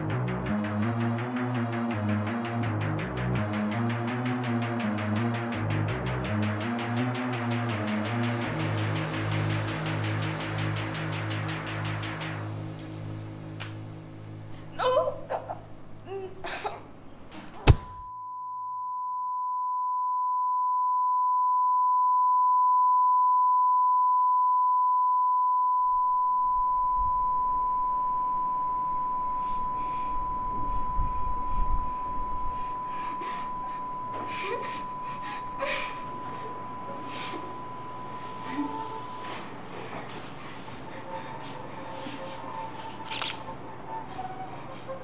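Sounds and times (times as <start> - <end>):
high pure ringing tone: 17.9 - 40.0.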